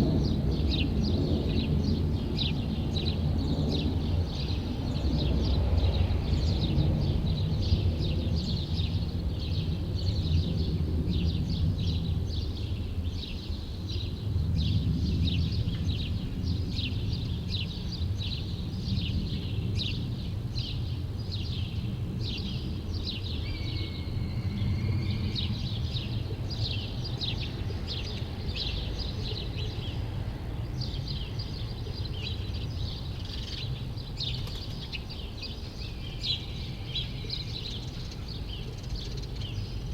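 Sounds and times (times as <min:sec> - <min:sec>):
city traffic rumble: 0:00.0 - 0:39.9
small birds chirping: 0:15.4 - 0:39.9.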